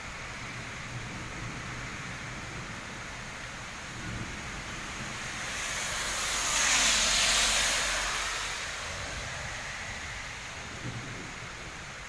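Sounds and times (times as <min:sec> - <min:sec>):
heavy rain on wet road: 0:00.0 - 0:12.0
rushing hiss: 0:04.6 - 0:10.8.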